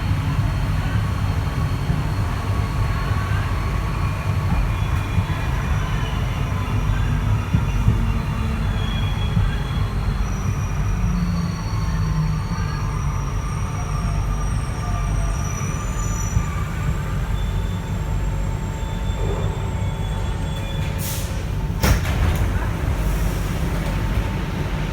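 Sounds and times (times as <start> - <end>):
train low rumble: 0.0 - 24.9.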